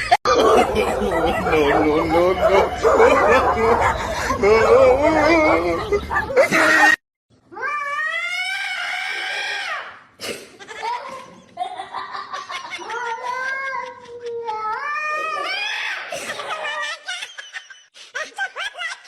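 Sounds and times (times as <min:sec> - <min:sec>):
cat yowling: 0:07.6 - 0:09.9.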